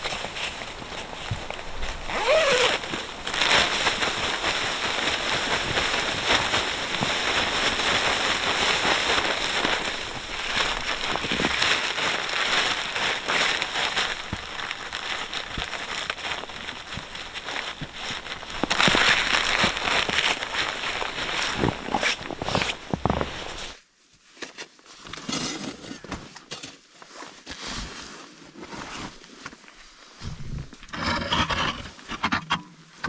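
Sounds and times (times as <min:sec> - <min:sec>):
campfire crackling: 0:00.0 - 0:23.8.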